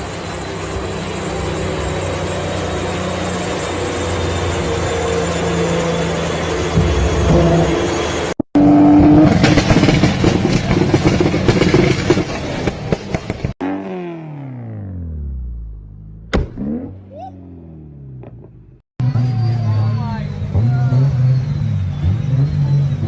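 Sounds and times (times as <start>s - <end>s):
engine revs descending drone: 0.0s - 23.0s
exhaust crackling and popping: 9.0s - 14.2s.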